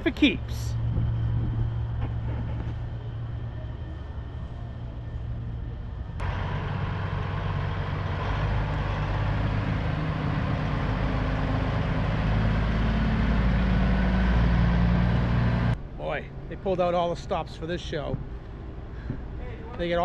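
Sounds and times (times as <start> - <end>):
diesel truck engine idling: 0.0 - 15.8.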